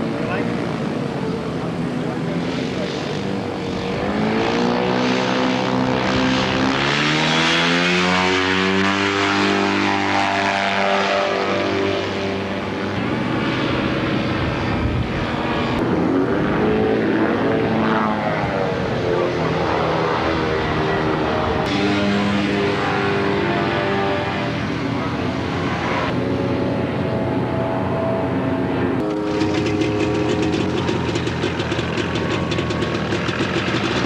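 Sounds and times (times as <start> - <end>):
light aircraft engine and propeller: 0.0 - 34.0.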